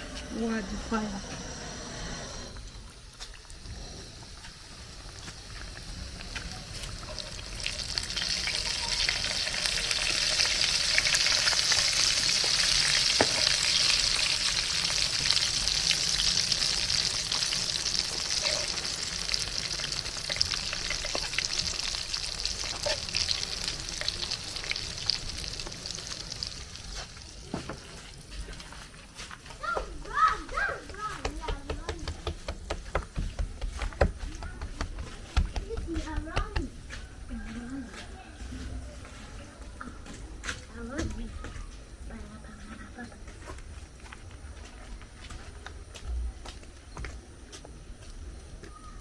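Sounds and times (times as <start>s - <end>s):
food sizzling in hot oil: 0.0s - 28.3s
oil popping: 2.3s - 27.9s.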